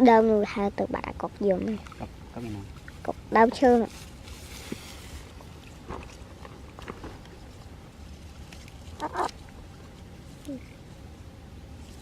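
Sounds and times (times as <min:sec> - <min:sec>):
short falling animal call: 0:09.0 - 0:09.3
short animal calls: 0:09.0 - 0:09.4.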